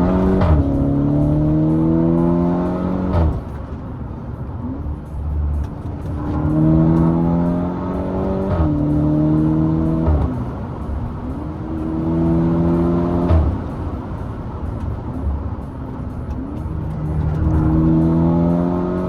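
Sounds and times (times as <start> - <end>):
exhaust blat on upshift: 0.0 - 3.8, 5.6 - 15.6
car engine accelerating hard: 0.0 - 19.0.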